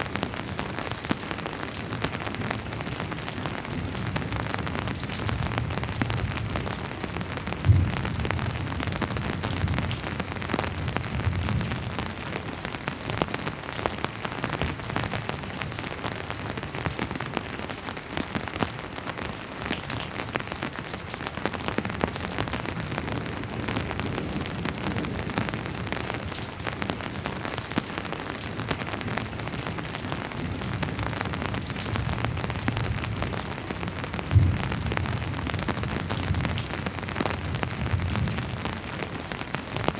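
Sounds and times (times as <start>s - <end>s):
rain falling: 0.0s - 39.9s
distant thunder rumble: 7.6s - 9.9s.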